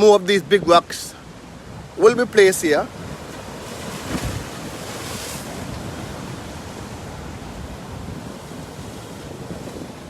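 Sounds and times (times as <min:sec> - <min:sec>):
surf washing against rocks: 0:00.0 - 0:10.0
wind buffeting microphone: 0:00.0 - 0:10.0.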